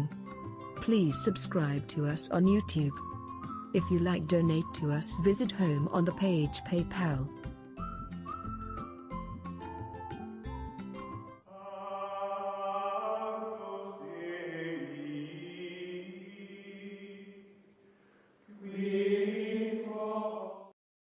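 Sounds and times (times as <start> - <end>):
chant-like voices holding notes: 11.5 - 17.6, 18.5 - 20.8.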